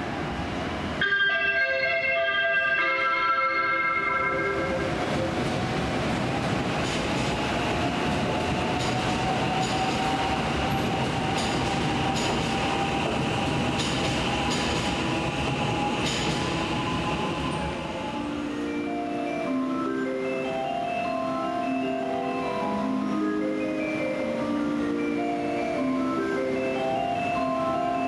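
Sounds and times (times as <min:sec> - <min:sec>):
train whine: 0:00.0 - 0:28.0
train wheels clicking over rail joints: 0:05.0 - 0:17.7.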